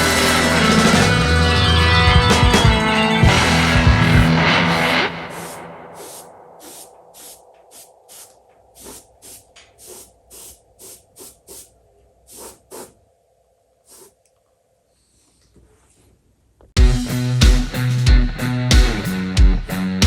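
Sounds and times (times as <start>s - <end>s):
airbrush spraying bursts: 3.5s - 13.0s, 13.8s - 14.2s.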